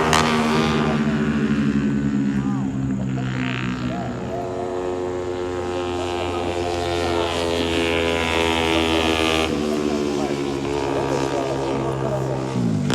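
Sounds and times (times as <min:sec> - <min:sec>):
racing motorcycle engines: 0:00.0 - 0:12.9.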